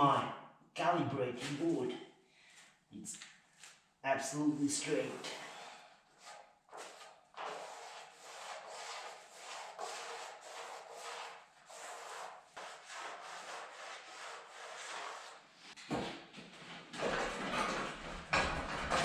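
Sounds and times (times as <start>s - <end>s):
hand tool rubbing strokes: 4.5s - 15.4s.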